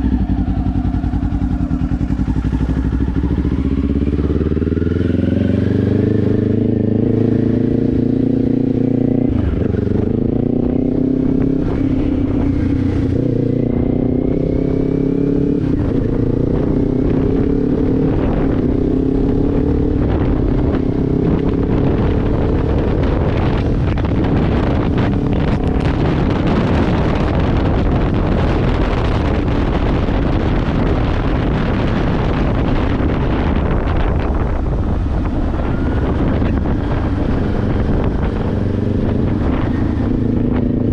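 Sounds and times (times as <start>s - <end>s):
motorcycle engine running: 0.0s - 40.9s
wind rush: 0.0s - 40.9s.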